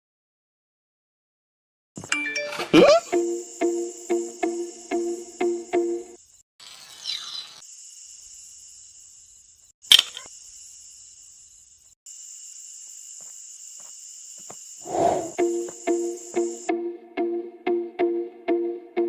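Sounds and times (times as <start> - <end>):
high-pitched insect chirring: 2.9 - 16.7
sharp loud click: 9.9 - 10.3.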